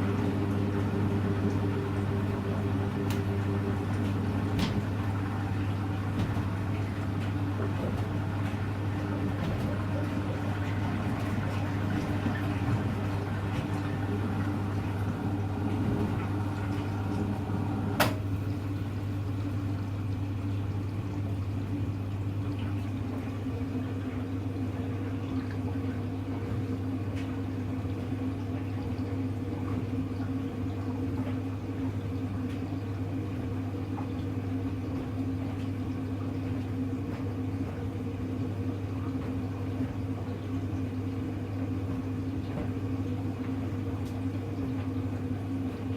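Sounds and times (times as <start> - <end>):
water sloshing: 0.0 - 17.6
washing machine humming: 0.0 - 45.9.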